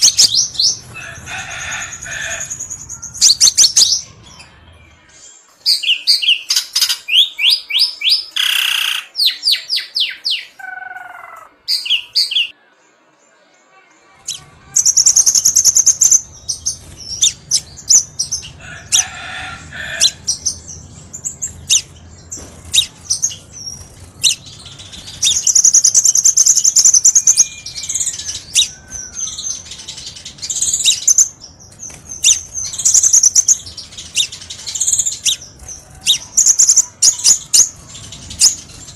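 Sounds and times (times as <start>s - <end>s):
sunbird chirps and trills: 0.0s - 13.4s, 14.2s - 38.9s
low background hum: 14.3s - 38.9s.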